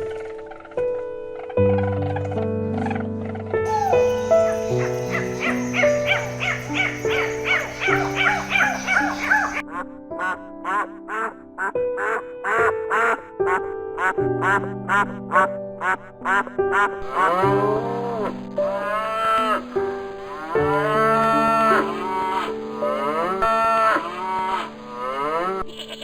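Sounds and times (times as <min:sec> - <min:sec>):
background music: 0:00.0 - 0:26.0
duck quacking: 0:03.7 - 0:19.7
cow mooing: 0:17.0 - 0:19.7, 0:20.3 - 0:25.6.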